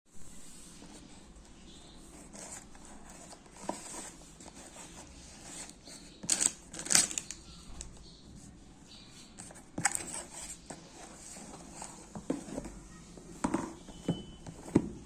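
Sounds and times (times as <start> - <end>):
packaging rustling: 2.4 - 8.0
packaging scraping rips: 6.2 - 7.4.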